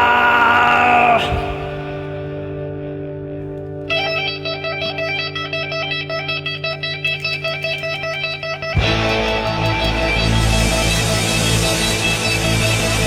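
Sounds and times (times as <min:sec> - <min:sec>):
rock band with drums: 0:00.0 - 0:02.4, 0:06.8 - 0:13.0
electric guitar lead: 0:01.2 - 0:13.0.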